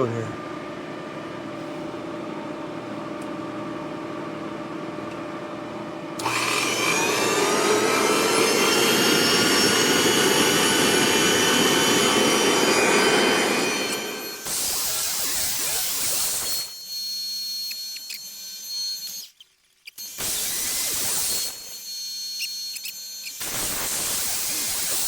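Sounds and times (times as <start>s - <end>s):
loud grinding hiss: 6.2s - 16.7s
grinder humming: 6.2s - 25.0s
whining tones: 6.2s - 25.0s.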